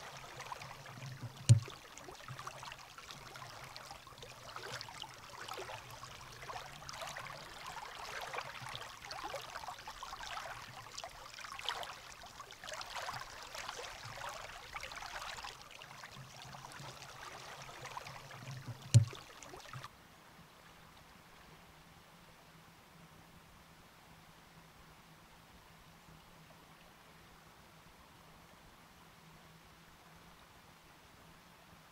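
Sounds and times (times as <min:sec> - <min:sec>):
river water rushing and splashing: 0:00.0 - 0:19.9.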